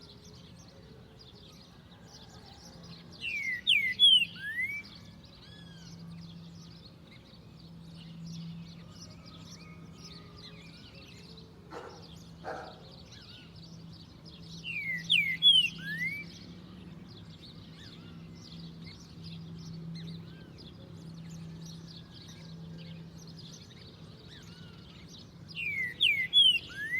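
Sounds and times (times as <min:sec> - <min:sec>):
bird singing whistled notes: 0:03.2 - 0:16.6, 0:21.2 - 0:26.9
faint high bird chirps: 0:17.7 - 0:26.9.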